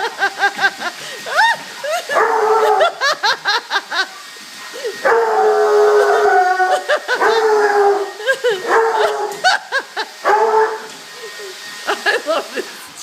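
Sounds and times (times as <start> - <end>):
dog howling: 2.1 - 3.1, 5.0 - 9.6, 10.2 - 10.9.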